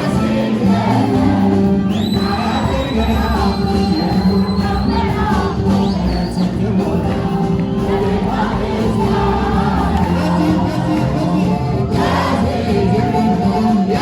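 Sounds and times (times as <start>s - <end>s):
gospel singing: 0.0s - 14.0s
instrumental backing: 0.0s - 14.0s.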